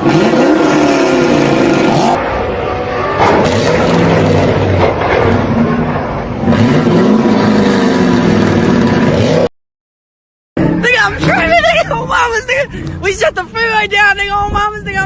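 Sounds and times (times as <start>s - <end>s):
car engine revving: 0.0s - 9.5s.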